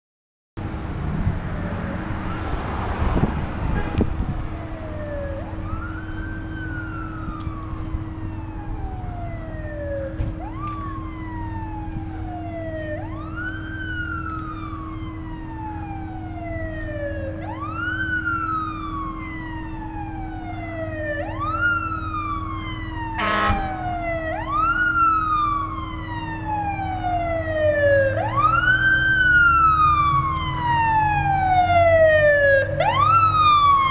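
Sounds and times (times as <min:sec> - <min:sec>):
fire engine siren wailing: 0:00.6 - 0:33.9
truck rumble: 0:00.6 - 0:33.9
short horn blast: 0:03.6 - 0:04.2, 0:23.2 - 0:23.7.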